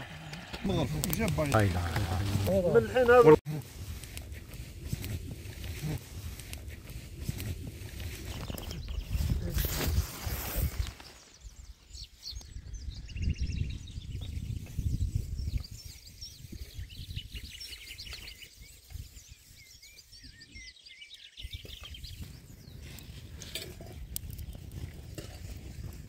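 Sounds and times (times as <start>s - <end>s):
low microphone rumble: 0.0s - 3.3s
small birds chirping and trilling: 6.9s - 24.9s.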